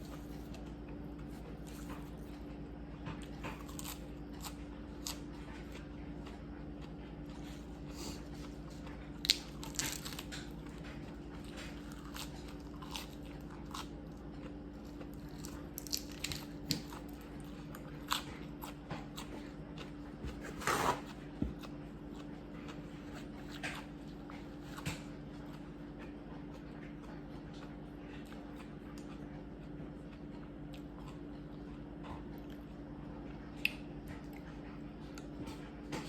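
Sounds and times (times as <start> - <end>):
chewing and biting seafood: 0.0 - 36.0.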